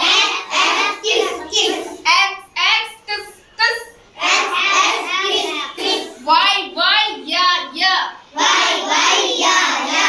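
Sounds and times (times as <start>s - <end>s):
children chanting in chorus: 0.0s - 2.0s, 4.2s - 6.3s, 8.3s - 10.0s.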